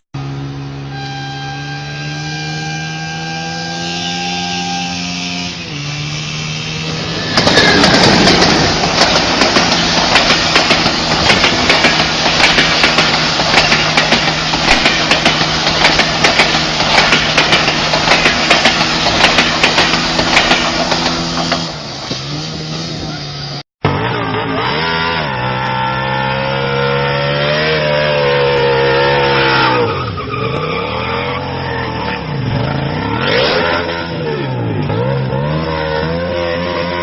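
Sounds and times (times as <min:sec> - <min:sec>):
loud rough crackling noise: 0:05.8 - 0:24.6.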